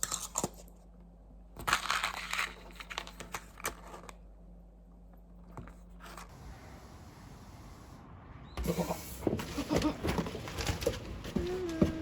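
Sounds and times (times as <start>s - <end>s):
crinkling handling noise: 0.0s - 4.3s.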